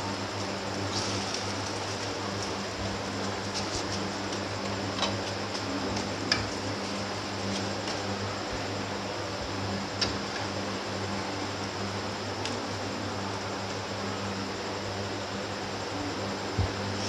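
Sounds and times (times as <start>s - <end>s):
steady low hum: 0.0s - 17.0s
flatbread sizzling on griddle: 0.8s - 4.7s.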